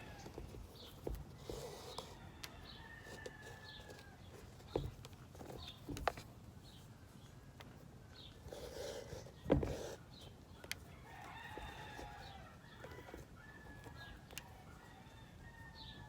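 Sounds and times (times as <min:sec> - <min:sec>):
light clicks and knocks: 0:03.2 - 0:06.4.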